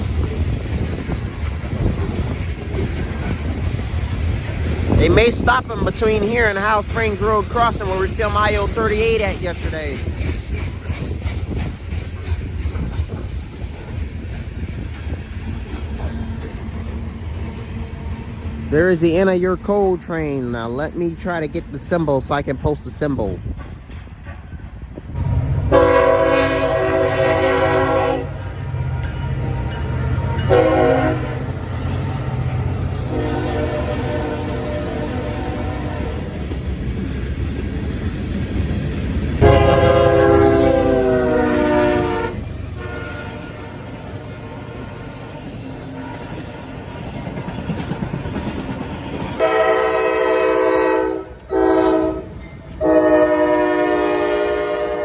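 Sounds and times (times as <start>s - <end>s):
train rumbling: 0.0s - 55.0s
locomotive air horn blasts: 25.7s - 31.6s, 33.1s - 36.3s, 39.4s - 45.0s, 49.4s - 55.0s.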